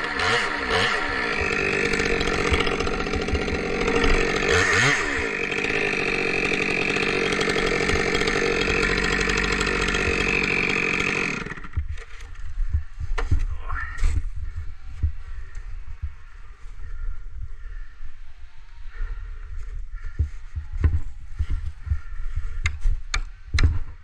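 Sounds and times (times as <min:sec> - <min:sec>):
chainsaw running at high revs: 0:00.0 - 0:12.0.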